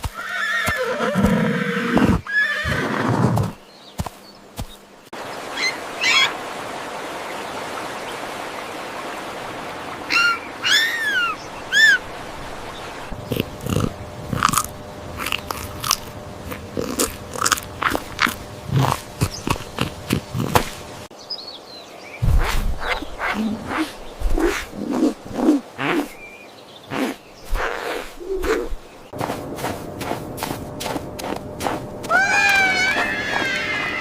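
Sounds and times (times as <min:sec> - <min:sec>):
outdoor background noise: 0:00.0 - 0:34.0
animal chewing and crunching: 0:13.2 - 0:20.9.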